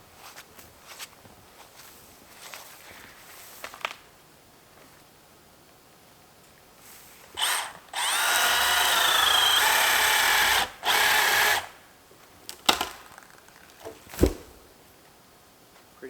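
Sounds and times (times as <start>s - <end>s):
power tool motor cutting wood: 7.4s - 11.7s.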